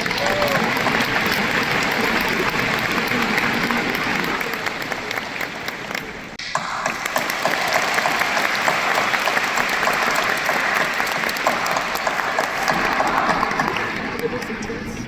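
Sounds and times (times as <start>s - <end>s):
large audience applauding: 0.0s - 15.0s.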